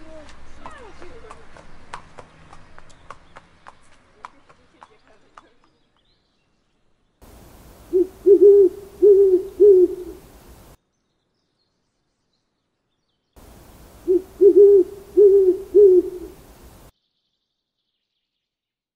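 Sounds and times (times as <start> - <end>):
owl hooting: 7.2 - 10.8, 13.4 - 16.9.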